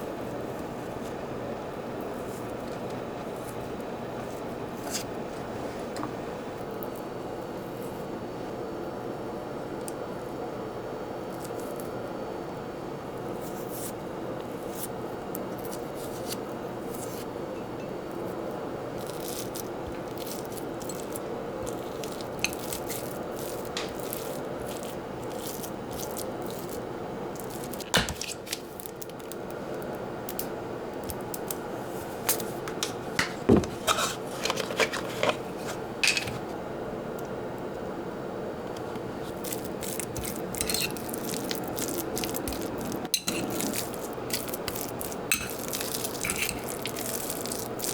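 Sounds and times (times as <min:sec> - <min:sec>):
steady low hum: 0:00.0 - 0:47.9
kitchenware scraping and clicking: 0:32.7 - 0:36.4, 0:40.2 - 0:41.2, 0:42.5 - 0:43.9, 0:45.3 - 0:47.0.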